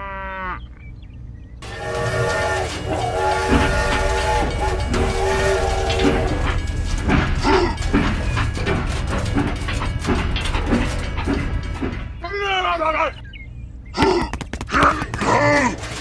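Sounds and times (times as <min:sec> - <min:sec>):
low train rumble: 0:01.1 - 0:16.0
train horn blasts: 0:01.6 - 0:07.2
irregular clattering: 0:01.6 - 0:16.0.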